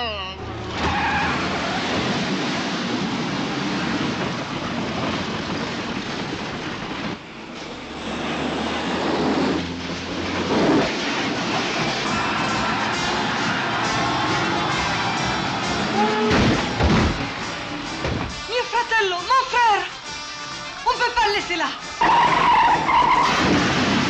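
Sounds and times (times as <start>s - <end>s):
road noise: 0.0s - 24.0s
vehicle engine running: 2.9s - 18.4s.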